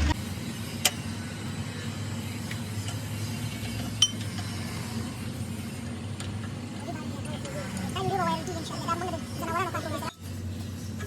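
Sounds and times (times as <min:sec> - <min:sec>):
steady low hum: 0:00.0 - 0:02.5.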